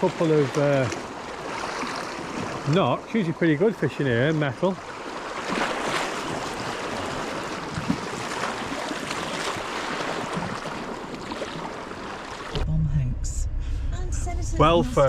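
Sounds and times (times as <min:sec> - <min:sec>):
sea washing against rocks: 0:04.6 - 0:12.6.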